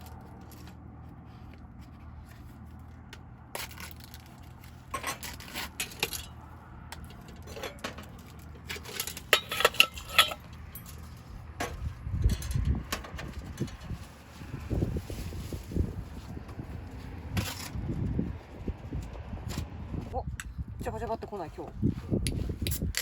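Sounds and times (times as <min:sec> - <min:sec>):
tableware and utensils clinking: 0:08.7 - 0:11.0.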